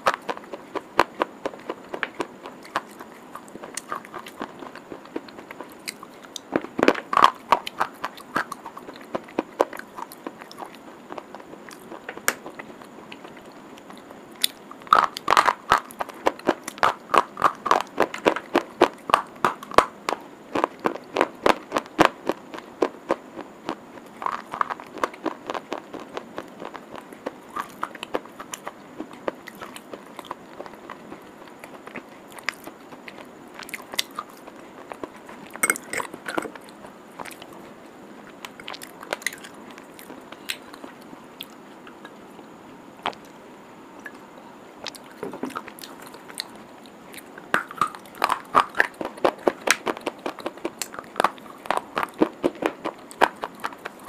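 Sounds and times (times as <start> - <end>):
hard stick being chewed: 0.0 - 43.4, 44.0 - 54.0.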